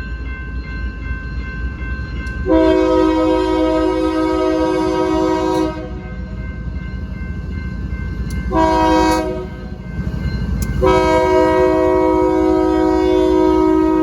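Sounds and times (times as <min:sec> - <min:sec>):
train rumble: 0:00.0 - 0:14.0
locomotive air horn blasts: 0:02.5 - 0:06.0, 0:08.5 - 0:09.6, 0:10.8 - 0:14.0.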